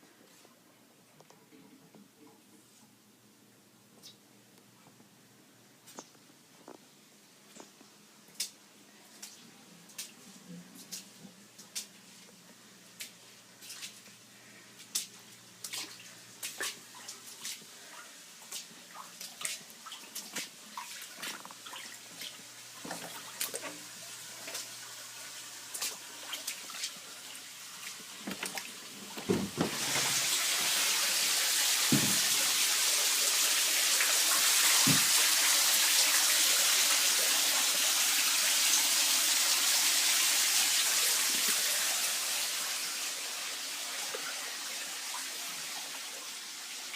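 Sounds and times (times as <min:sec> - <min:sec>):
water dripping: 0:07.5 - 0:10.2, 0:14.8 - 0:29.2
rush of running water: 0:18.9 - 0:46.9.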